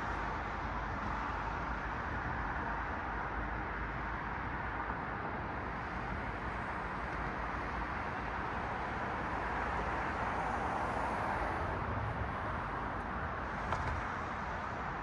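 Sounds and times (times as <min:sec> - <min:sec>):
cars passing with tyre hiss: 0:00.0 - 0:15.0.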